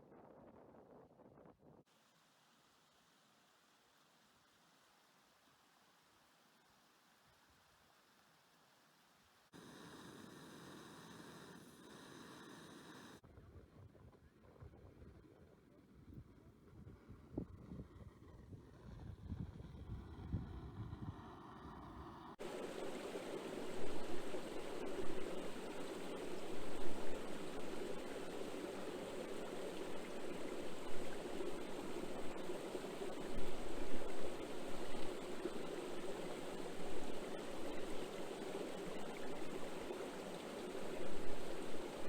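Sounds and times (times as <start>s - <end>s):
wind buffeting microphone: 16.7s - 21.4s
stream rushing water: 22.4s - 42.0s.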